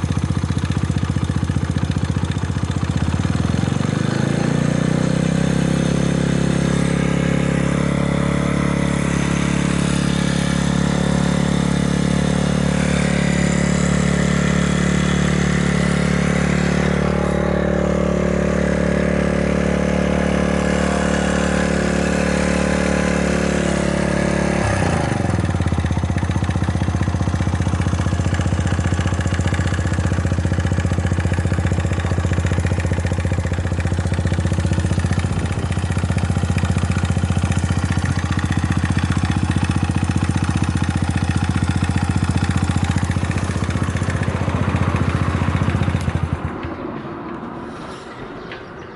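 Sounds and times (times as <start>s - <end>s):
scooter engine running: 0.0s - 48.9s.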